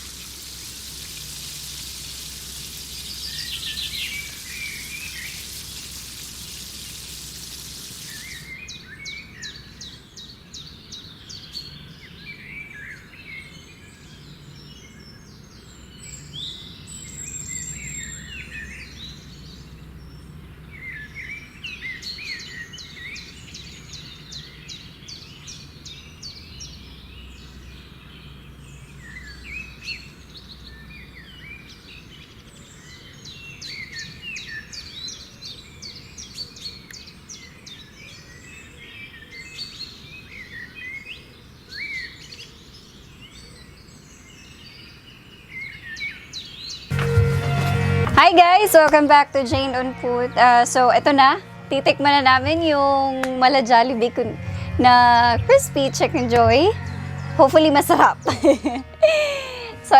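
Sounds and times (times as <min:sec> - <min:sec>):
even hiss: 0:00.0 - 0:08.7
birds chirping: 0:00.0 - 0:13.4, 0:29.0 - 0:59.9.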